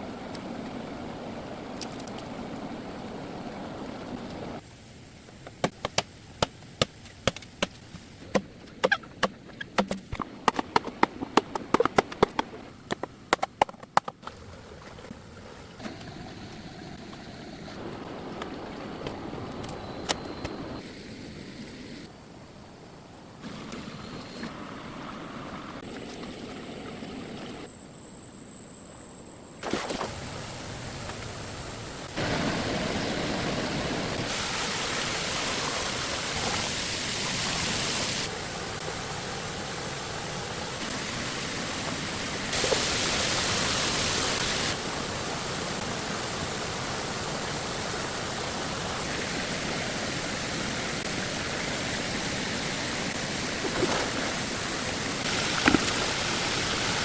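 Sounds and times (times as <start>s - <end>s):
waterfall and stream roaring: 0.0s - 27.7s, 29.6s - 57.0s.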